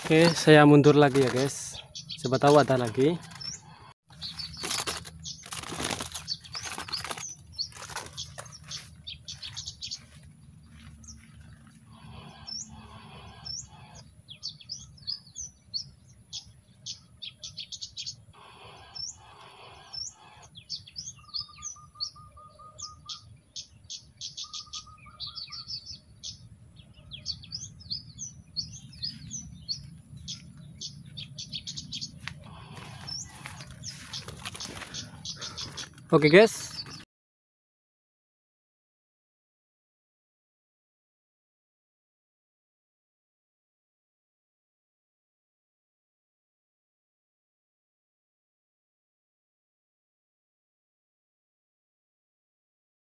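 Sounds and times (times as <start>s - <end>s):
low buzzy bird trill: 0.0s - 37.0s
small birds chirping and trilling: 0.0s - 37.1s
rustling: 4.2s - 8.9s.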